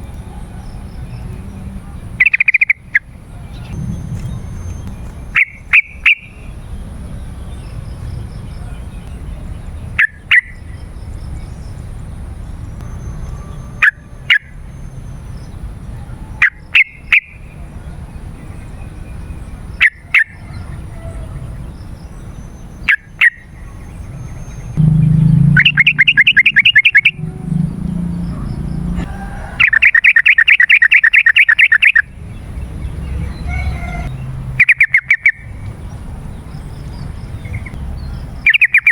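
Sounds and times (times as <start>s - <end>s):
bird call notes: 2.2s - 6.5s, 24.6s - 32.1s, 33.2s - 35.5s
low background rumble: 3.3s - 9.9s, 24.4s - 29.6s
bird chattering rattles: 24.8s - 27.2s.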